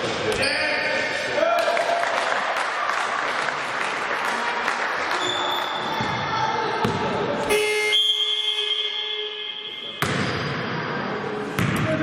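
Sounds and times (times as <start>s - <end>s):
crowd clapping: 1.6s - 5.8s
loud steady tone: 7.5s - 10.4s.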